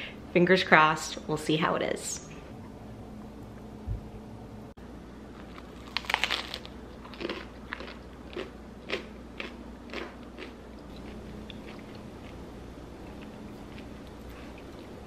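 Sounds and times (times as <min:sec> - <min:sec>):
crunchy chewing: 0:05.3 - 0:15.0
biting into crunchy bread crust: 0:05.4 - 0:12.0.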